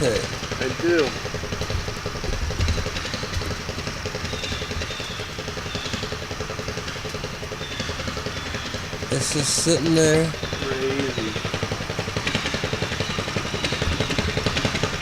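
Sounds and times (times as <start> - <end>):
small engine idling: 0.0 - 15.0.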